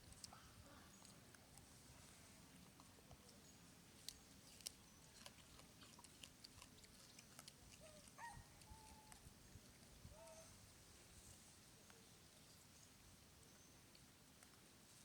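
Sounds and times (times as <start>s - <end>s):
small clicks and rustles: 13.4s - 14.7s.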